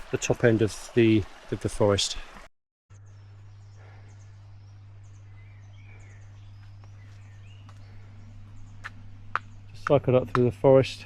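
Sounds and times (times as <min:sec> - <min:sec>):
bird chirps: 0:02.9 - 0:10.0
steady low hum: 0:02.9 - 0:11.0.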